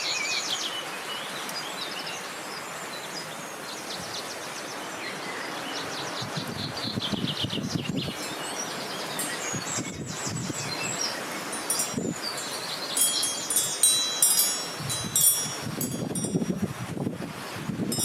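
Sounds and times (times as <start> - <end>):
wind gusting across microphone: 3.3 - 18.0
wind chimes tinkling: 9.2 - 16.8.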